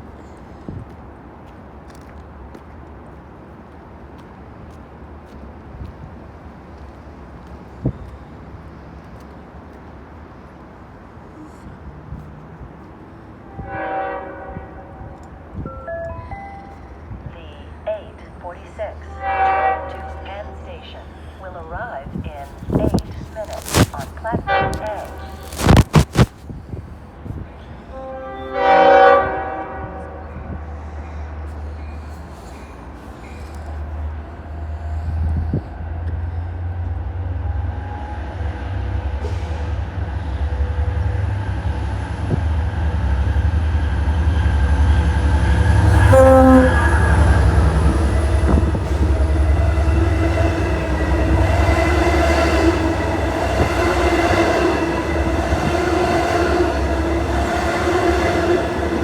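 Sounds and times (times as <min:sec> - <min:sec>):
train rumbling past: 0:00.0 - 0:59.0
train horn blast: 0:13.5 - 0:15.2, 0:19.1 - 0:20.7, 0:23.5 - 0:26.3, 0:27.9 - 0:30.6, 0:45.1 - 0:59.0.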